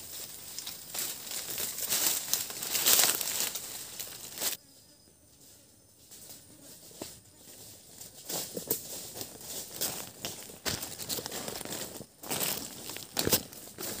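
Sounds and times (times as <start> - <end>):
rustling crinkling noise: 0.0 - 4.6, 7.6 - 14.0.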